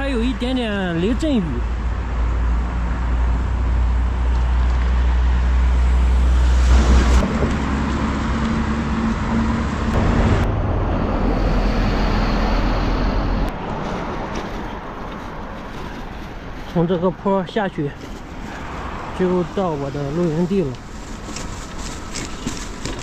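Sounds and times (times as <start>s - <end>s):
engine hum: 0.0s - 23.0s
low traffic rumble: 0.0s - 23.0s
vehicles passing: 0.0s - 23.0s.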